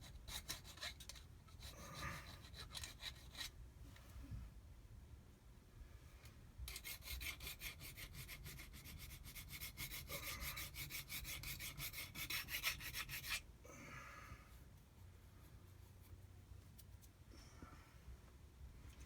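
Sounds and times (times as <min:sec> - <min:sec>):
hand file rasping on metal: 0:00.0 - 0:03.5, 0:06.7 - 0:13.4.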